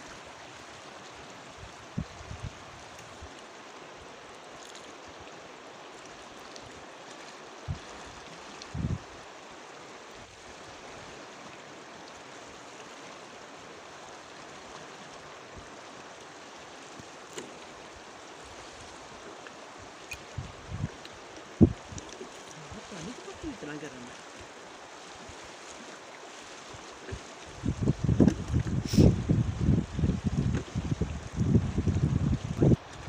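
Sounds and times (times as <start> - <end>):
river rushing: 0.0 - 33.0.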